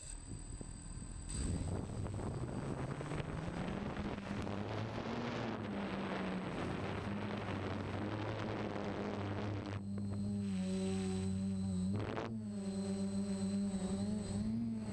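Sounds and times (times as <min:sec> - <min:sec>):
drone motors whirring: 0:00.0 - 0:14.9
wind rushing over microphone: 0:01.3 - 0:09.8.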